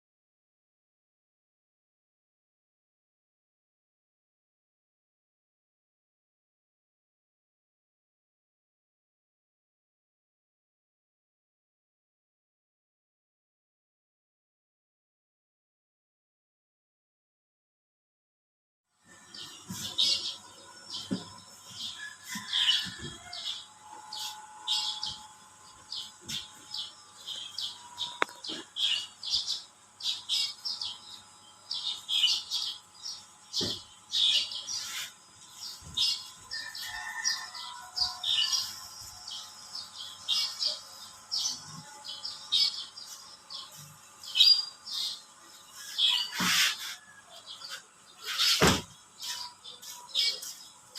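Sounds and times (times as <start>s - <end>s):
birds chirping: 19.1s - 50.8s.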